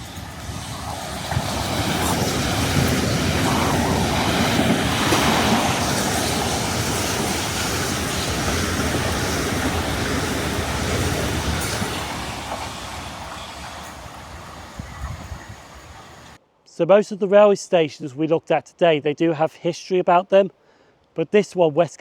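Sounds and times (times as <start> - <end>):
electric train running: 0.0 - 16.4.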